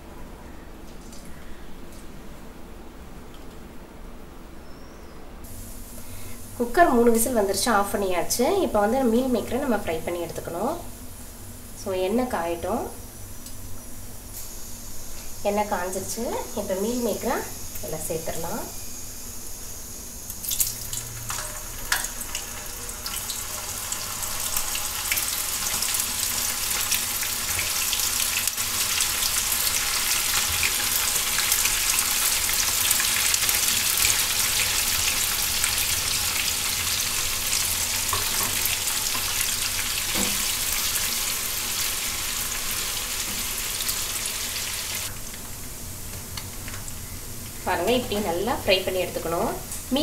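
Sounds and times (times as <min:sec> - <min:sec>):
food sizzling in hot oil: 0:08.6 - 0:45.4.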